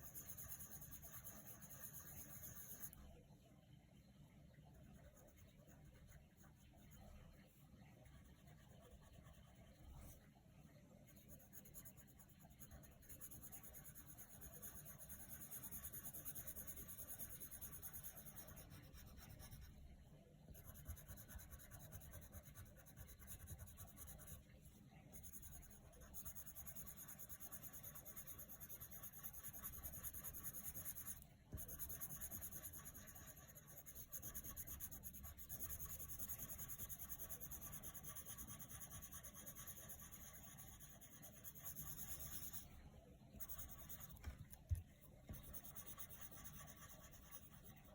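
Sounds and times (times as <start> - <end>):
coloured pencil rubbing on paper: 0.0 - 3.0, 4.8 - 10.2, 11.1 - 19.9, 20.5 - 42.7, 43.3 - 47.9.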